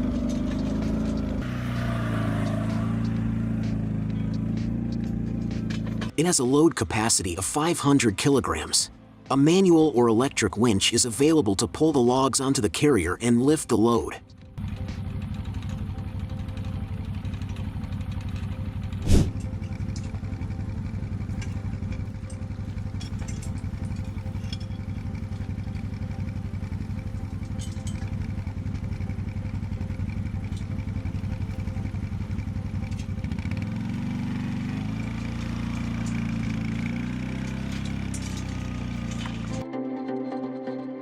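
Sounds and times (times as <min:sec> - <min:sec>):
small atv engine running: 0:00.0 - 0:06.1, 0:14.6 - 0:39.6
sharp knock: 0:19.1 - 0:19.4.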